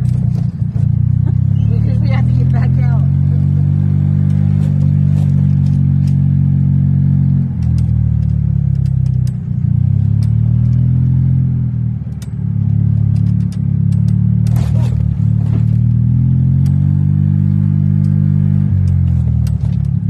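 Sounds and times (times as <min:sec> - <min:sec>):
clicks and rattles: 0:00.0 - 0:01.4, 0:07.5 - 0:11.1, 0:12.0 - 0:17.0, 0:17.8 - 0:20.0
golf cart motor hum: 0:00.0 - 0:20.0.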